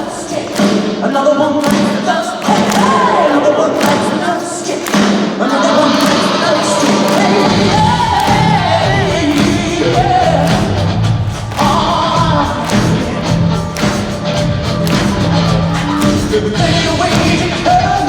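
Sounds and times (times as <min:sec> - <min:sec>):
person singing: 0:00.0 - 0:14.2, 0:14.8 - 0:18.0
drums: 0:00.0 - 0:18.0
bass line: 0:07.2 - 0:18.0.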